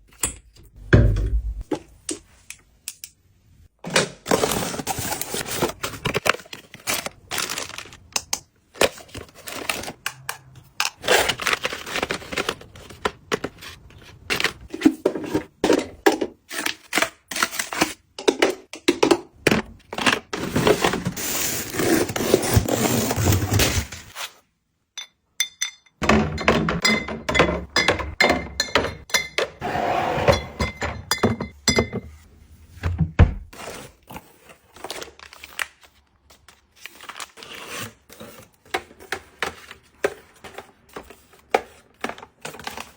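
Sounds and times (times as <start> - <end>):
packaging crinkling: 4.4 - 8.1.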